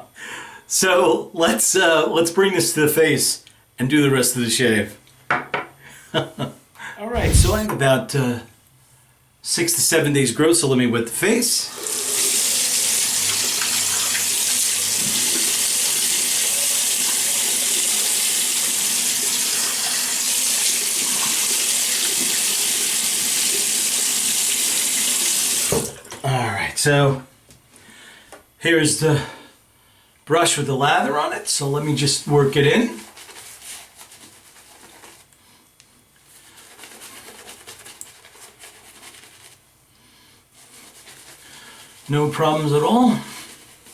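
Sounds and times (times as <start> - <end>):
shaving brush swishing on stubble: 7.1 - 7.7
water running from sink tap: 11.7 - 26.0.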